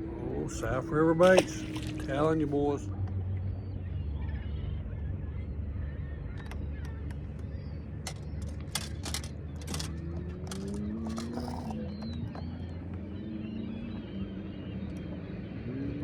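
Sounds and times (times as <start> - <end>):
boat motor rumbling: 0.0 - 16.0.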